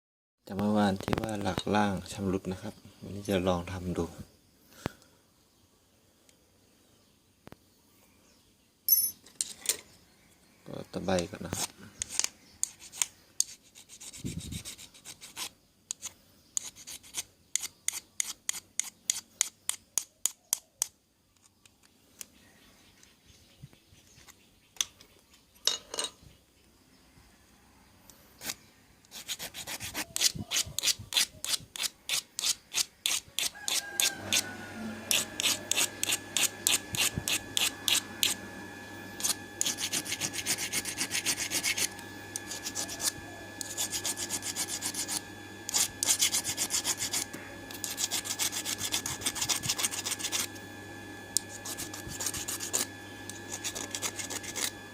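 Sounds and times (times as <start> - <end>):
file scraping metal: 11.4 - 20.4, 28.4 - 54.9
steady low hum: 34.2 - 54.9.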